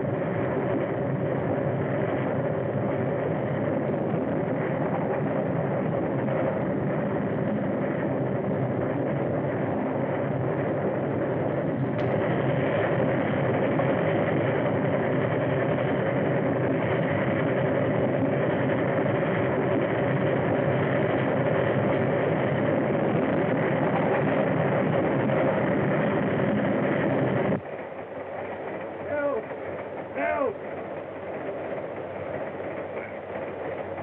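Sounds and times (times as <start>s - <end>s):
train rumble and clatter: 0.0s - 34.0s.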